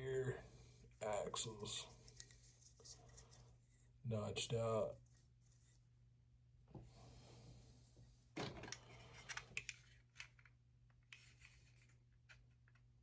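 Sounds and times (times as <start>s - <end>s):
faint rubbing of model parts: 0.8s - 4.0s, 4.9s - 5.9s, 8.8s - 12.8s.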